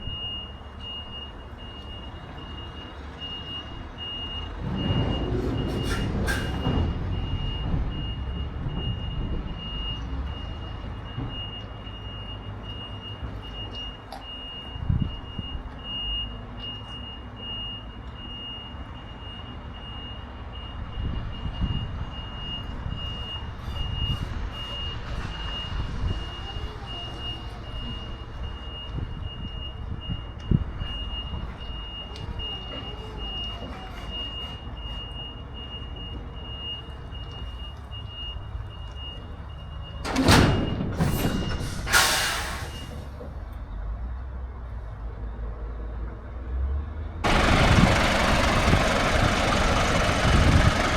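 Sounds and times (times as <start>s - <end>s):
diesel engine rumble: 0.0s - 50.9s
truck reversing alarm beeping: 0.0s - 50.9s.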